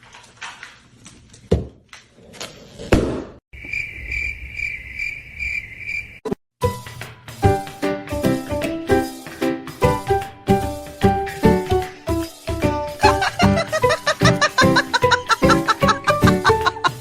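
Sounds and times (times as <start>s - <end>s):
cricket-like chirping: 3.6s - 6.3s
piano music: 6.6s - 17.0s.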